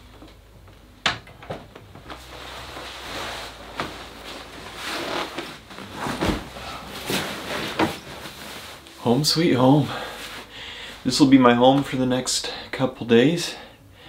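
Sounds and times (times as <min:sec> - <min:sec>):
handling rustling: 0:02.0 - 0:09.1.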